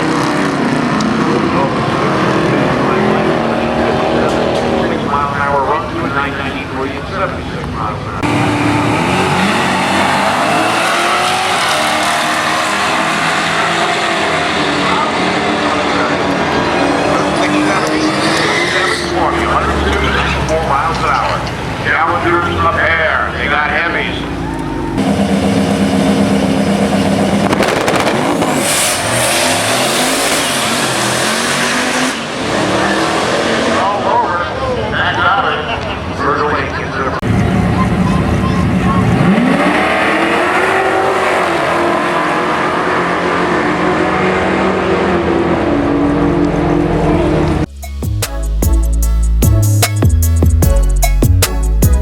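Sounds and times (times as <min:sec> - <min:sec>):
muscle car engines roaring: 0:00.0 - 0:47.7.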